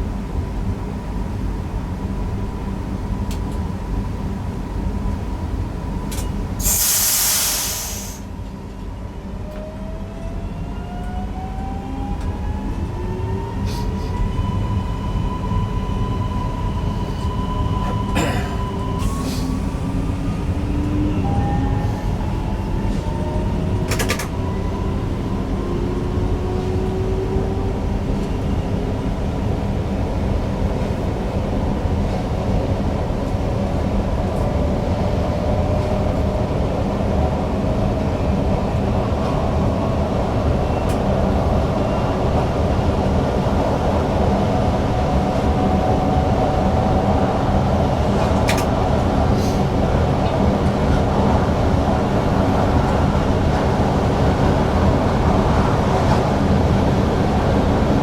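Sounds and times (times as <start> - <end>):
steady train rumble: 0.0 - 58.0
train traction drive whine: 0.0 - 58.0
loud air hiss: 6.6 - 8.3
sharp clicks from track: 23.9 - 24.4, 48.3 - 48.7.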